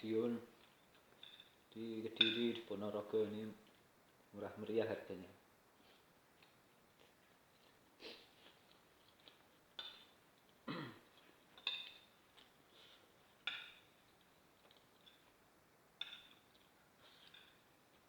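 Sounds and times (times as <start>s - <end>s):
spoon clinking on a plate: 2.2s - 2.6s, 11.5s - 12.1s, 13.5s - 14.0s, 16.0s - 16.6s.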